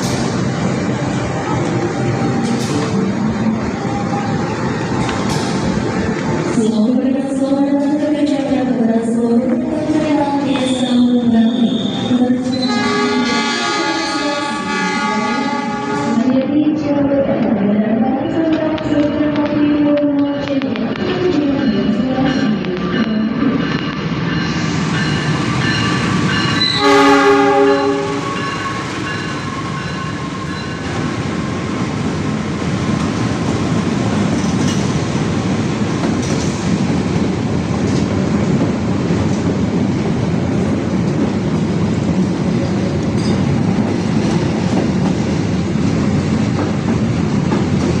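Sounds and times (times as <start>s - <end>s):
train rumbling on rails: 0.0s - 48.0s
train horn blast: 11.5s - 16.3s, 26.6s - 28.9s.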